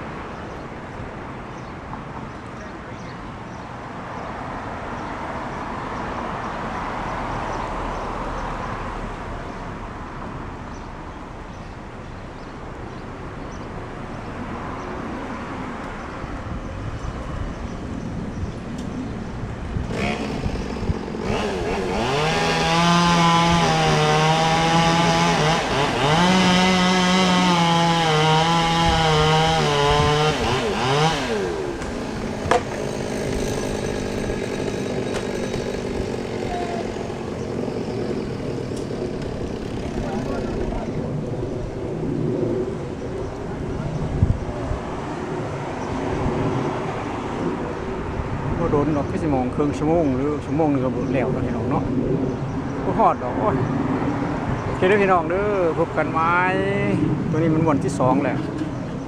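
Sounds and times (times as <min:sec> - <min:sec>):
chainsaw cutting wood: 0:19.8 - 0:40.8.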